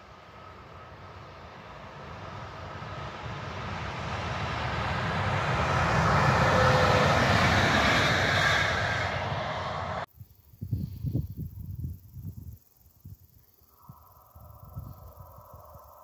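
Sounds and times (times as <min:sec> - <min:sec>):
train rumbling past: 0:00.0 - 0:10.1.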